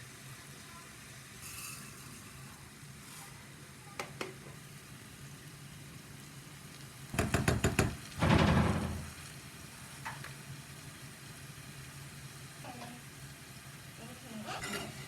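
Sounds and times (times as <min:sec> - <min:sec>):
sizzling: 0:00.0 - 0:15.0
utensil knocking on pan: 0:07.2 - 0:09.2.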